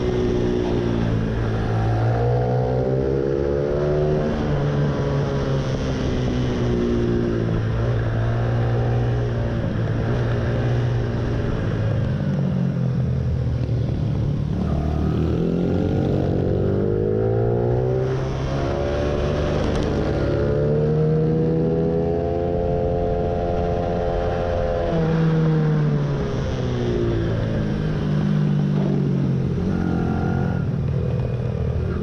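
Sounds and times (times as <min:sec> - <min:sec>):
motorcycle engine revving: 0:13.6 - 0:32.0.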